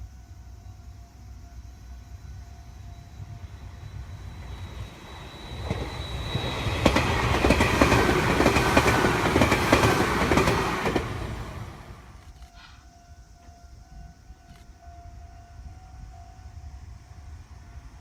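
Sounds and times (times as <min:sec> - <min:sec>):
electric train passing: 0:00.0 - 0:18.0
wheels clicking over rail joints: 0:04.4 - 0:12.8.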